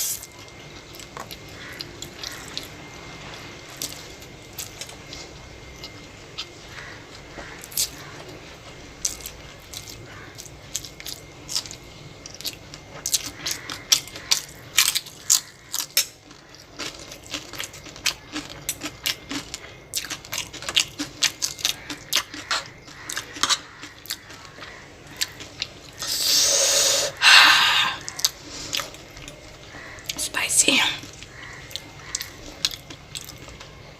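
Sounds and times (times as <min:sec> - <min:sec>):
crunchy chewing: 0:00.0 - 0:30.4, 0:31.0 - 0:33.9.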